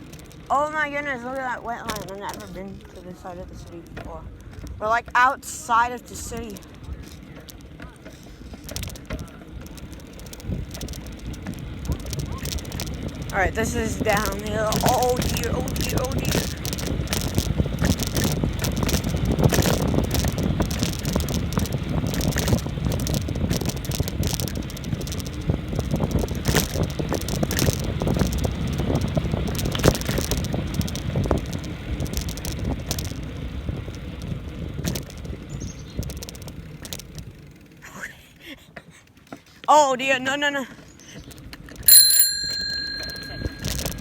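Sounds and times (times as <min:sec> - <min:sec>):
bike rattling and clattering: 0:00.0 - 0:44.0
wind rushing over microphone: 0:08.6 - 0:37.3.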